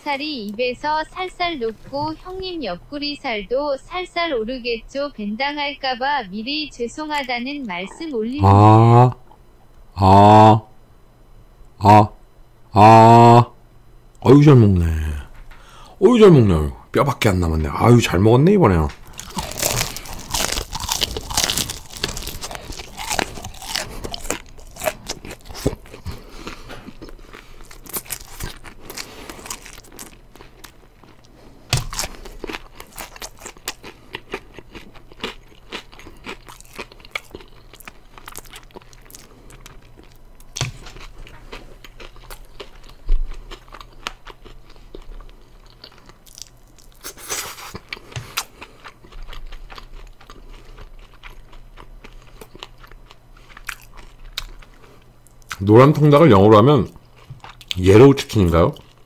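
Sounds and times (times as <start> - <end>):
crunching fried chicken: 18.7 - 59.0.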